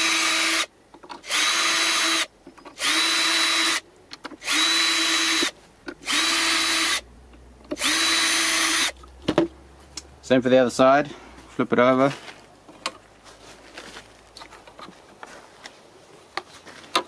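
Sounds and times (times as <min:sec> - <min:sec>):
power drill whining: 0:00.0 - 0:03.8, 0:04.4 - 0:07.0, 0:07.8 - 0:09.0.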